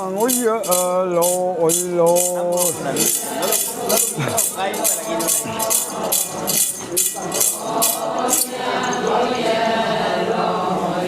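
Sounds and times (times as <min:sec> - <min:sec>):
jingling metal rattle: 0:00.0 - 0:09.2
group chanting in unison: 0:02.7 - 0:11.0.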